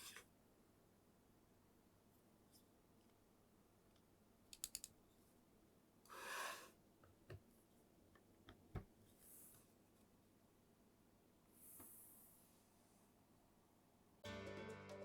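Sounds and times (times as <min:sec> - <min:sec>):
small plastic clicks: 0:04.5 - 0:05.0
soft rustle: 0:11.5 - 0:13.2.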